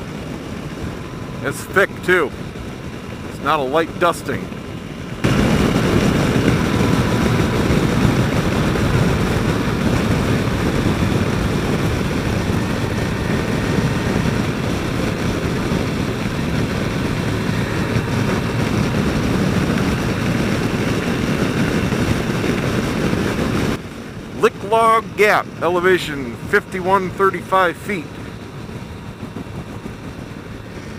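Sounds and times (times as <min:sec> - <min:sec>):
wind rush on microphone: 0:00.0 - 0:27.3, 0:28.0 - 0:30.9
motorcycle engine running: 0:04.3 - 0:27.3.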